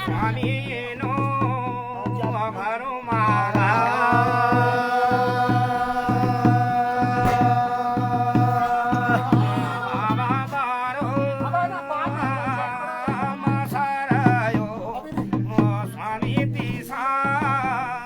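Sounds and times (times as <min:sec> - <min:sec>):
man singing: 0:00.0 - 0:18.0
steady drum beat: 0:00.0 - 0:18.0
long held note: 0:03.7 - 0:09.7.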